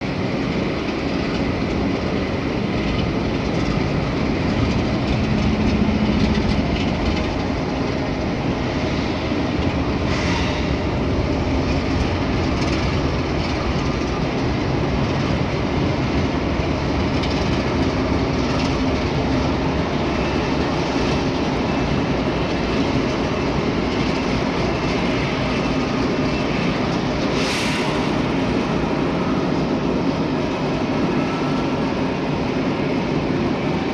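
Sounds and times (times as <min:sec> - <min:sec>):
freight train rumbling past: 0:00.0 - 0:33.9
wheels clattering over rail: 0:02.6 - 0:09.0.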